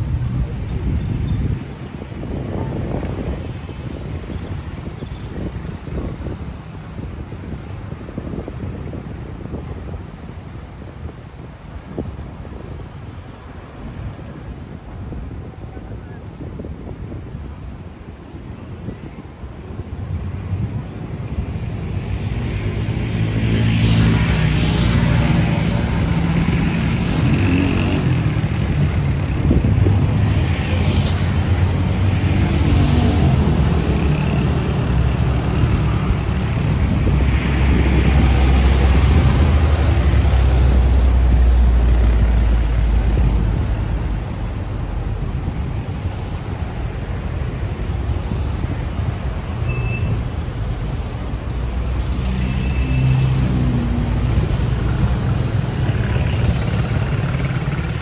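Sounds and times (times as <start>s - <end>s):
street traffic passing: 0.0s - 58.0s
deep engine rumble: 24.3s - 45.6s.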